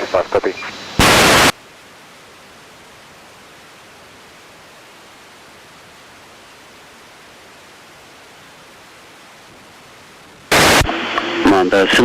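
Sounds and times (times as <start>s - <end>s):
radio static burst: 0.0s - 1.6s, 10.5s - 12.0s
radio static hiss: 0.0s - 12.0s.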